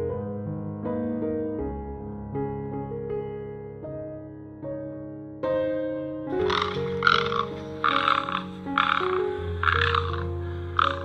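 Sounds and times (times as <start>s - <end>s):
soft piano music: 0.0s - 11.0s
frog croaking: 6.3s - 11.0s.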